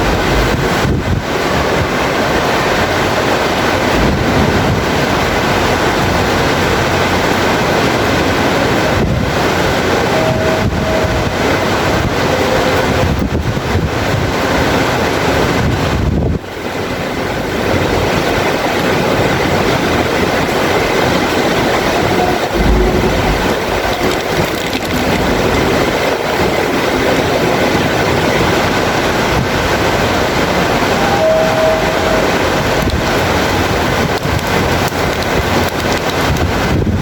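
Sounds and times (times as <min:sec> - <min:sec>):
heavy rain falling: 0:00.0 - 0:37.0
low rumble: 0:03.8 - 0:08.1, 0:20.6 - 0:26.2.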